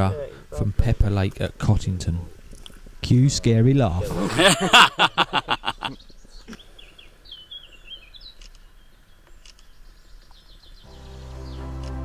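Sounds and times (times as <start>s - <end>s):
faint outdoor ambience: 0.0s - 12.0s
faint bird chirps: 5.8s - 11.7s
background music: 10.9s - 12.0s.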